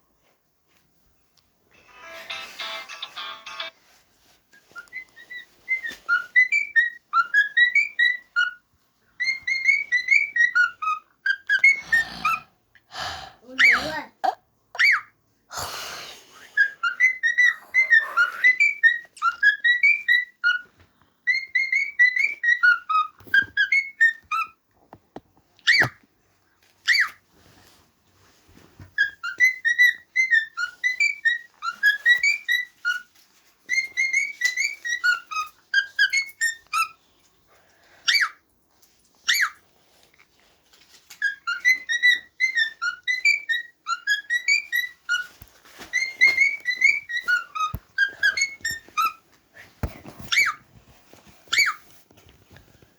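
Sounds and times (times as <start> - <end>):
cockatiel whistling: 4.6 - 8.6, 9.2 - 12.4, 16.5 - 20.7, 21.3 - 24.6, 29.0 - 33.1, 33.7 - 37.0, 39.3 - 39.6, 41.2 - 49.2, 50.2 - 50.6, 51.5 - 51.8.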